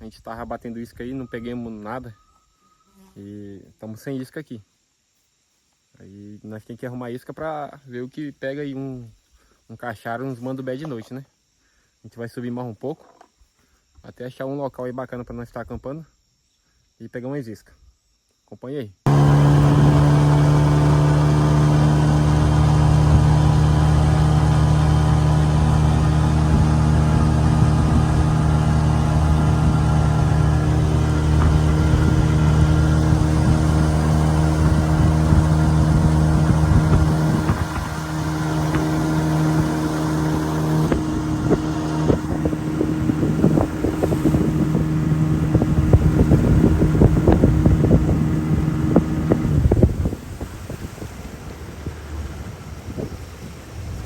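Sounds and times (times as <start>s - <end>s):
outboard motor running: 19.1s - 54.0s.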